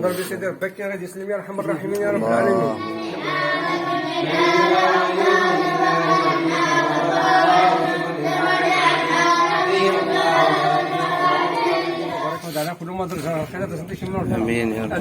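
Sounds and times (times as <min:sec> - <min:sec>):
voices chanting in unison: 0:02.1 - 0:12.8.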